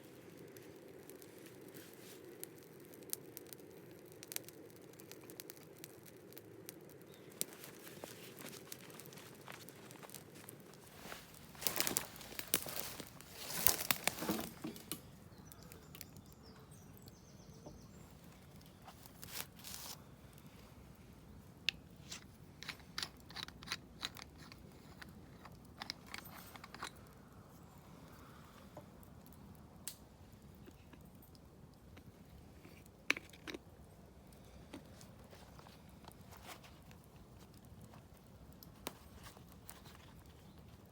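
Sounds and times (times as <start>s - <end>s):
rustling and crinkling: 0.0s - 3.6s, 6.9s - 16.2s, 17.9s - 29.6s, 30.3s - 40.9s
sharp clicks and crackles: 0.3s - 16.4s, 21.6s - 27.3s, 29.0s - 33.7s.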